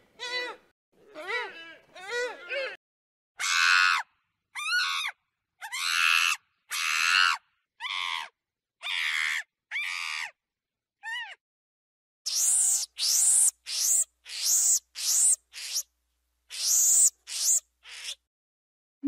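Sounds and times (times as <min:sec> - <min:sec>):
monkey screeching: 0:03.4 - 0:04.0, 0:04.6 - 0:10.4, 0:11.0 - 0:11.4, 0:12.3 - 0:15.9, 0:16.5 - 0:18.3.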